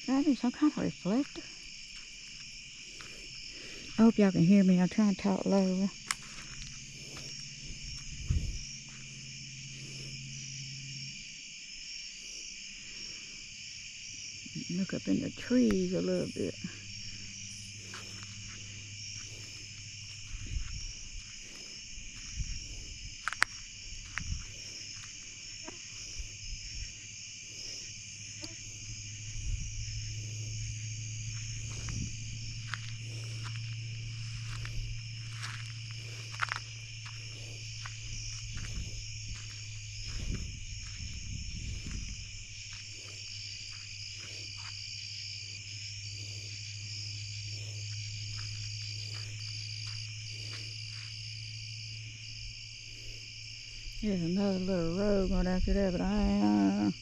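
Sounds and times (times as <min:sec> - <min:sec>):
crickets and insects chirping: 0:00.0 - 0:57.0
footsteps through brush: 0:01.2 - 0:04.1, 0:05.9 - 0:10.0, 0:16.9 - 0:27.1, 0:28.6 - 0:51.7
low steady hum: 0:26.2 - 0:52.8.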